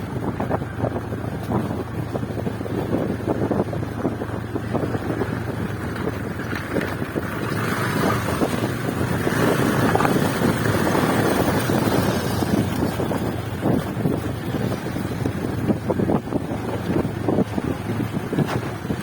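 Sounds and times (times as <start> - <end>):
motorcycle rumble: 0.0 - 19.0
wind buffeting microphone: 0.0 - 19.0.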